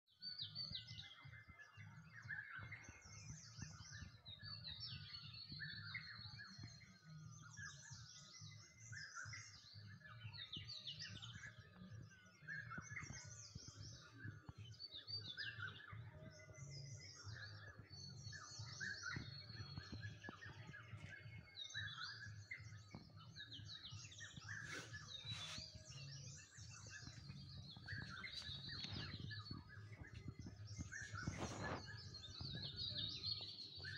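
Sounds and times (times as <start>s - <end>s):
birds chirping and singing: 0.1s - 33.9s.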